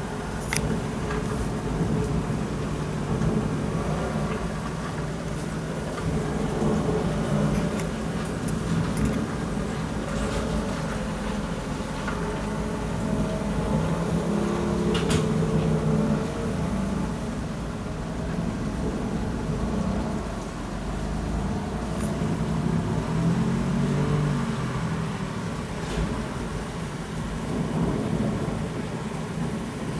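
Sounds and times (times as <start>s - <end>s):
heavy rain falling: 0.0s - 29.9s
low thunder rumble: 0.0s - 29.9s
sharp drip-like clicks: 0.4s - 1.4s.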